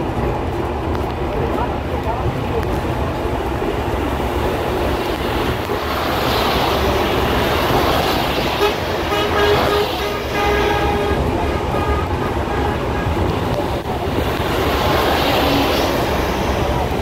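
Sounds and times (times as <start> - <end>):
moving train rumble: 0.0 - 17.0
train horn tooting: 8.5 - 13.4.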